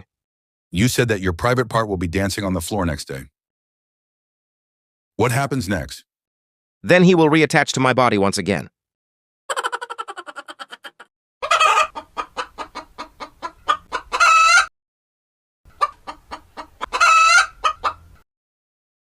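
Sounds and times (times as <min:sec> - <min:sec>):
chicken clucking: 0:09.5 - 0:14.7, 0:15.7 - 0:18.2.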